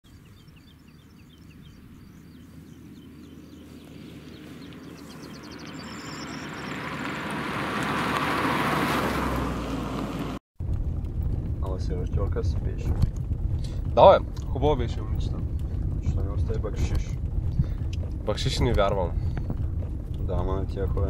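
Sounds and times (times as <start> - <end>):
car approaching on asphalt: 0.1 - 21.0.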